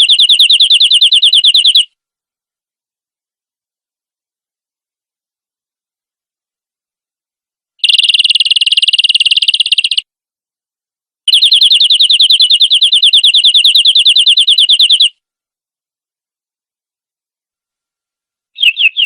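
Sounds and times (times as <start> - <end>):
canary singing fast trills: 0.0 - 2.0, 7.8 - 10.1, 11.3 - 15.2, 18.6 - 19.0.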